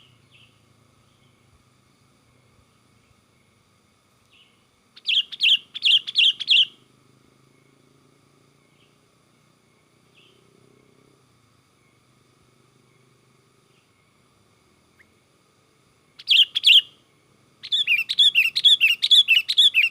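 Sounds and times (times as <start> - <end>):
bulbul chirping: 5.0 - 6.8, 16.2 - 16.9, 17.6 - 19.9.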